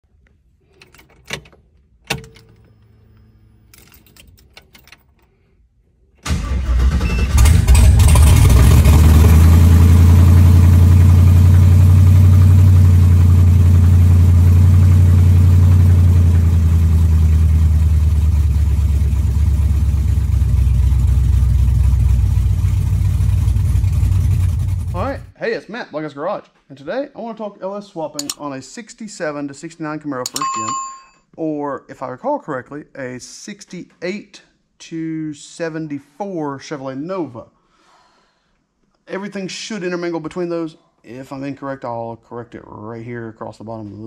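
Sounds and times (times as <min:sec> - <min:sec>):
car engine starting and idling: 0:06.2 - 0:25.3
clicks: 0:28.2 - 0:28.4, 0:30.3 - 0:31.1.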